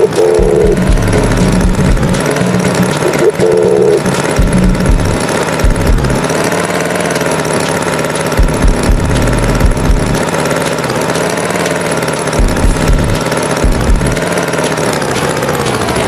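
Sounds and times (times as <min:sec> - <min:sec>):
tractor engine running: 0:00.0 - 0:16.0
irregular low thumps: 0:00.3 - 0:06.2, 0:08.4 - 0:10.2, 0:12.4 - 0:14.2.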